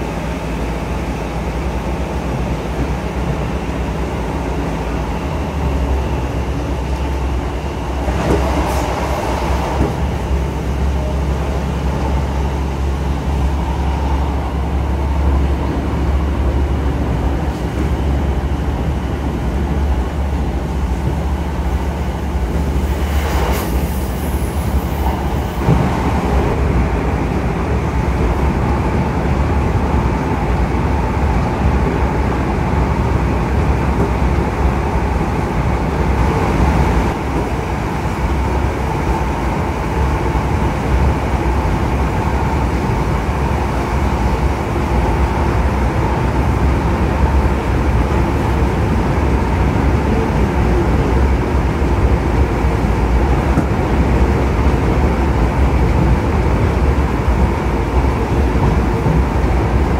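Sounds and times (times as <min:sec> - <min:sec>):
train rumble inside carriage: 0:00.0 - 0:59.9
brief high hiss: 0:22.8 - 0:25.2.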